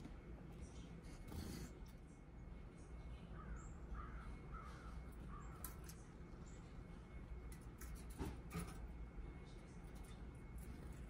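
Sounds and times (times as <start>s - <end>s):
harsh crow-like bird calls: 3.3s - 6.0s.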